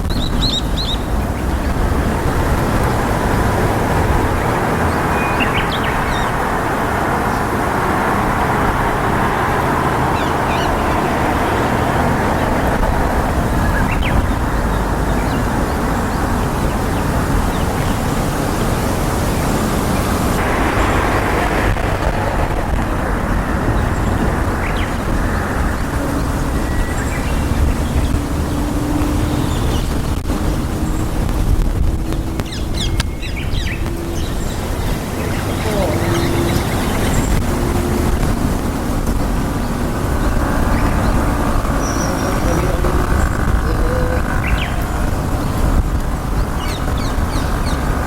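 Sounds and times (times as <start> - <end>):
loud rushing noise: 0.0 - 48.0.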